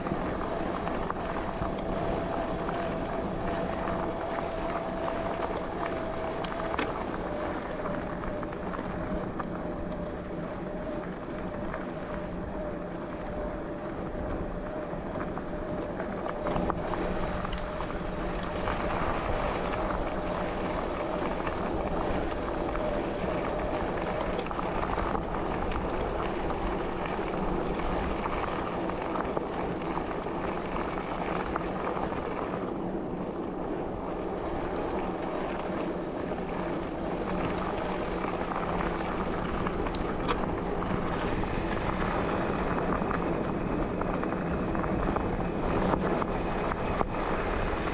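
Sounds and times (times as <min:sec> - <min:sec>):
bicycle tyres rolling: 0:00.0 - 0:47.9
wind buffeting microphone: 0:00.0 - 0:47.9.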